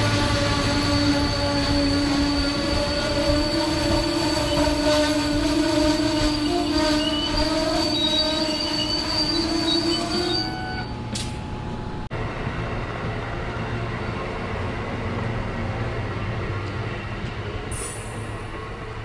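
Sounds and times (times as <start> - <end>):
train wheels squealing: 0.0 - 11.2
rumble of train wheels: 0.0 - 19.0.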